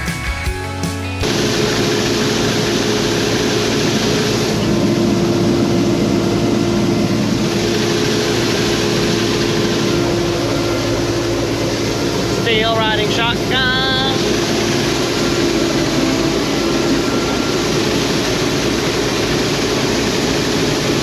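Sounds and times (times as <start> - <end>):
combine harvester running: 0.0 - 21.0.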